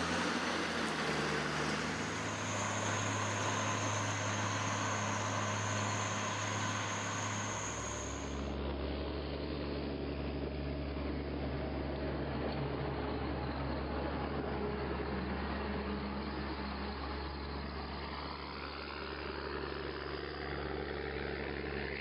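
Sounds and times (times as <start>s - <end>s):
machinery running with high whine: 0.0s - 8.6s.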